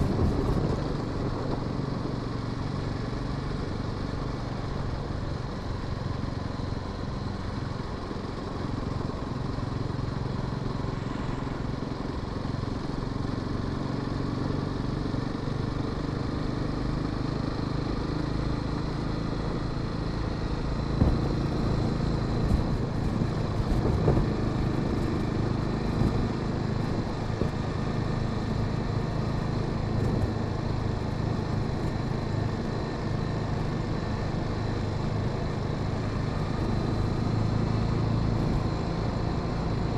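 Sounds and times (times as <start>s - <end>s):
wind noise: 0.0s - 2.3s, 20.6s - 32.8s
motorcycle engine running: 0.0s - 39.9s.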